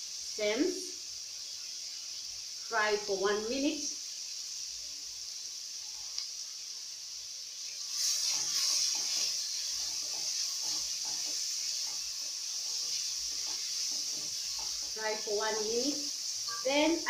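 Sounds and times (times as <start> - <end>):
onions sizzling in oil: 0.0 - 17.0
wooden spoon scraping a pot: 7.9 - 15.2.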